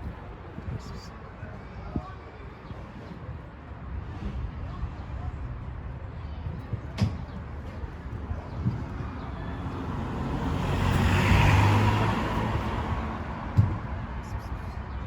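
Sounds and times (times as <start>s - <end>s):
road vehicle passing by: 8.7s - 15.0s.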